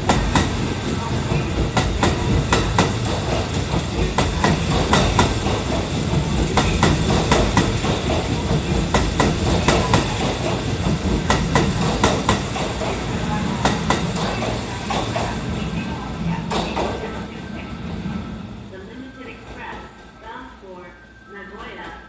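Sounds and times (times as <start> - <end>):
train rolling rumble: 0.0 - 22.0.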